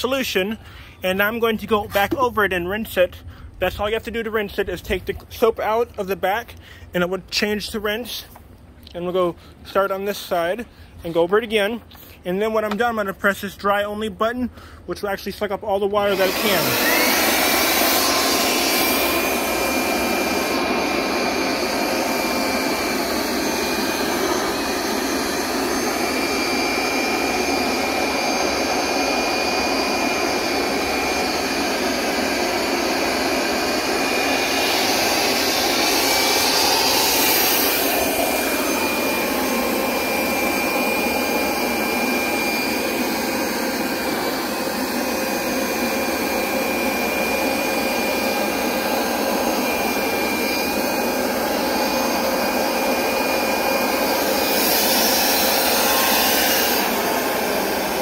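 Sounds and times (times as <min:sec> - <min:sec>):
carpet cleaner motor whine: 0:16.0 - 0:58.0.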